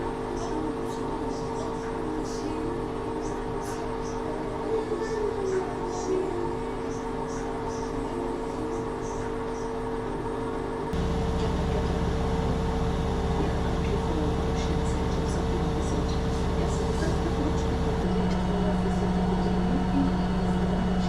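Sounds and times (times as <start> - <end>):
washing machine hum: 11.0 - 21.0.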